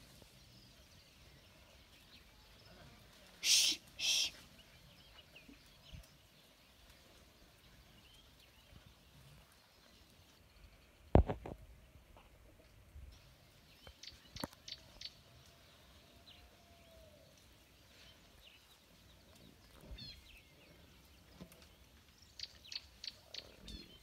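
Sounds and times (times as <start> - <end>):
short bird chirps: 3.4 - 4.5.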